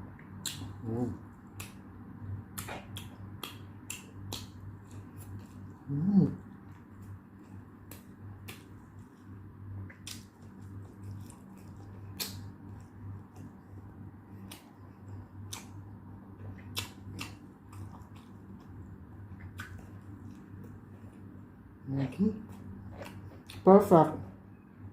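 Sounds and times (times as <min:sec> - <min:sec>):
steady low hum: 0:00.0 - 0:24.9
chewing sounds: 0:02.5 - 0:23.7.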